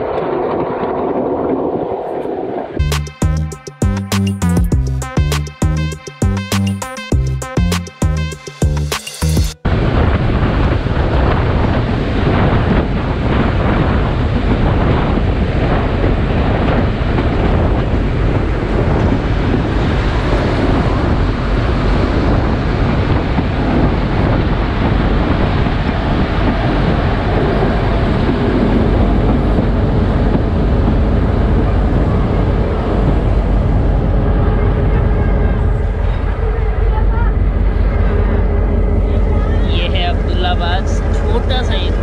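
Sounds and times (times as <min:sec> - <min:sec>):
train carriage rumbling: 0:07.2 - 0:42.0
wind buffeting microphone: 0:09.6 - 0:42.0.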